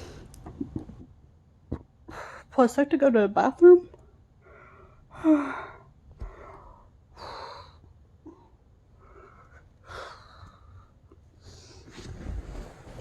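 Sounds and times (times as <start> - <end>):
woman breathing heavily: 0.0 - 0.4, 2.0 - 2.6, 4.4 - 12.0.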